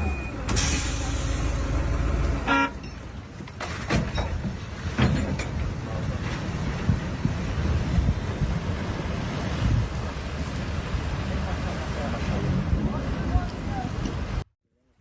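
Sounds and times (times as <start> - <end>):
horn blast: 0.6 - 2.8.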